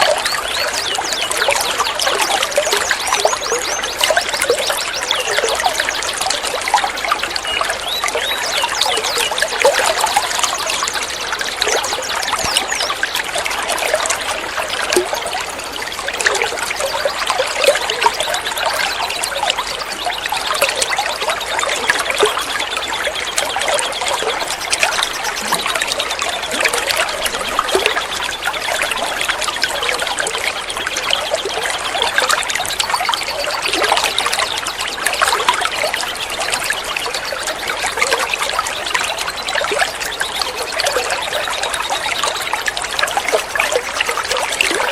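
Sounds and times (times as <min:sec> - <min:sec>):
water trickling and gurgling: 0:00.0 - 0:44.9.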